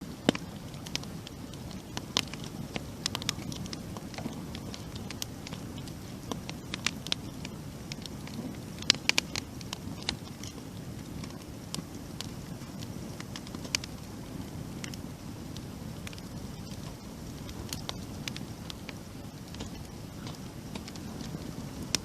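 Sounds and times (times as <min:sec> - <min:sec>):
low rush of flame: 0:00.0 - 0:22.0
wood crackling and popping: 0:00.0 - 0:22.0.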